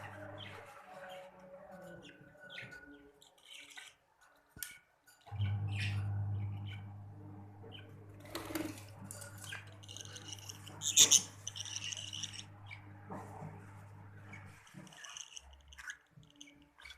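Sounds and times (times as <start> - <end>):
steady low hum: 5.3 - 14.8
budgerigars chirping: 8.6 - 12.9.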